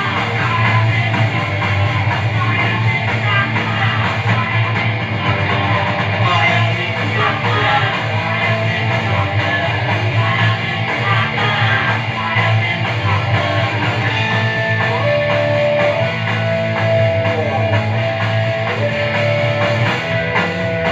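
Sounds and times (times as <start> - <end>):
rock song with electric guitars: 0.0 - 20.9.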